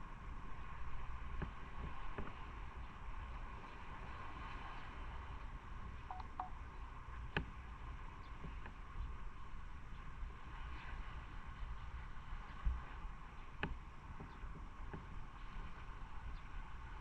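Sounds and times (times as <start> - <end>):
wind hiss on microphone: 0.0 - 17.0
short beeps: 6.1 - 6.6.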